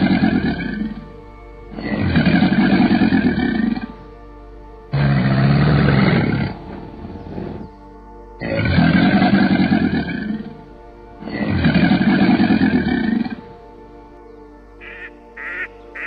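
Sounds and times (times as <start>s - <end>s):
alligator bellowing: 0.0s - 1.1s, 1.7s - 4.0s, 4.9s - 7.7s, 8.4s - 13.6s
background music: 0.0s - 16.0s.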